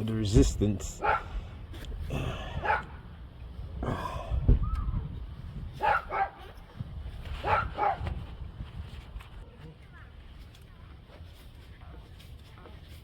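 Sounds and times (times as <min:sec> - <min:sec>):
dog barking: 0:01.0 - 0:01.3, 0:02.6 - 0:02.9, 0:05.8 - 0:06.5, 0:07.4 - 0:08.1.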